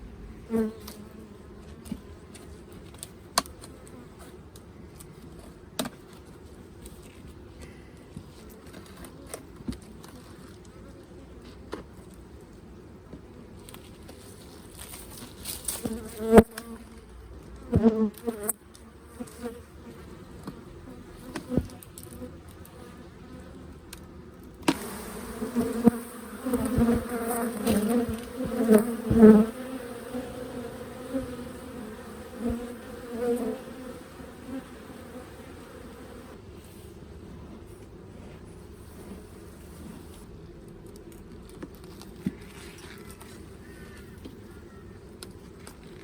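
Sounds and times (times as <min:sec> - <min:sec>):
honey bees buzzing: 0:24.7 - 0:36.4.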